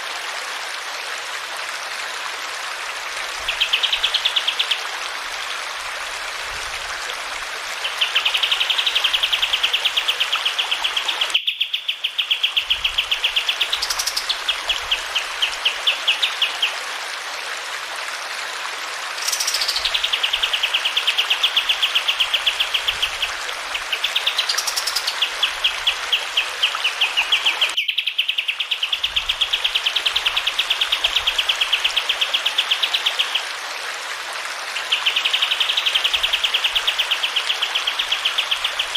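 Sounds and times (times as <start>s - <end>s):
running water: 0.0s - 11.4s, 12.2s - 27.8s
songbird trilling: 11.3s - 12.7s, 26.9s - 29.2s.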